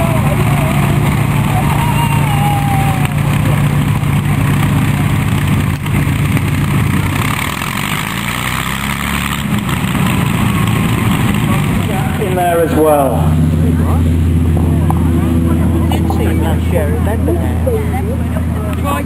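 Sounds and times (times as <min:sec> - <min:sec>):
engine running with low hum: 0:00.0 - 0:19.0.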